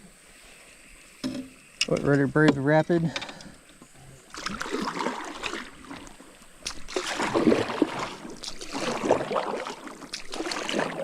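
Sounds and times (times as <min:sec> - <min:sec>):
paddle strokes: 0:00.3 - 0:11.0
water splashing and rushing: 0:04.3 - 0:11.0.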